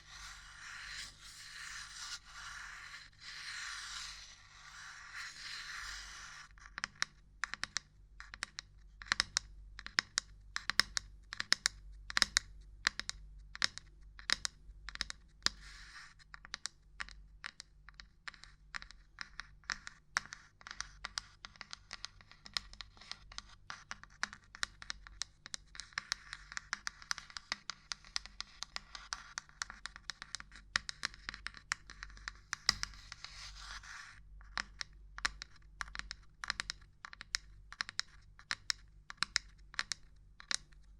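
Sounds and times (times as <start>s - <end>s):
continuous scratching: 0.0s - 6.7s
tapping on small objects: 34.4s - 40.9s.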